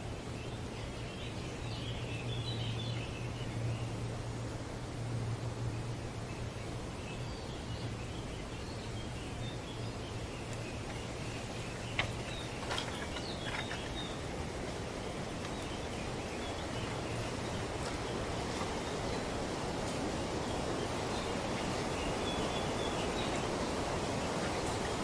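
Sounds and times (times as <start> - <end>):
wind: 0.0 - 25.0.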